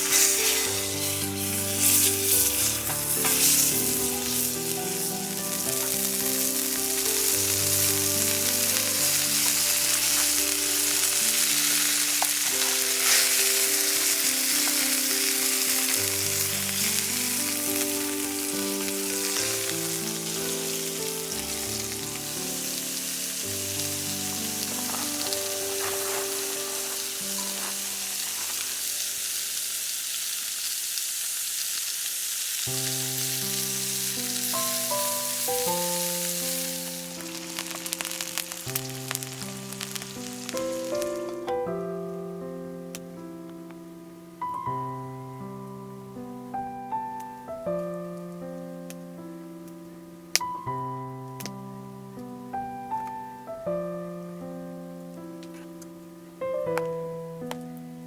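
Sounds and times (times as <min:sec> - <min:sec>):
food sizzling in a pan: 0:00.0 - 0:41.9.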